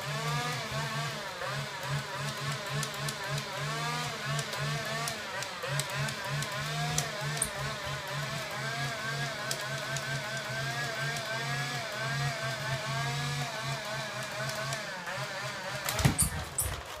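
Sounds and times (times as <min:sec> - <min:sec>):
vacuum cleaner motor whining: 0:00.0 - 0:17.0
thumps: 0:15.9 - 0:17.0.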